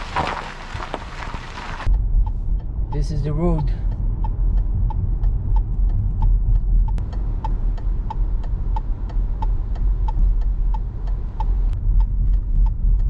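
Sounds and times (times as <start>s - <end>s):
engine and road noise rumble: 0.0s - 13.0s
car indicator clicking: 1.9s - 13.0s.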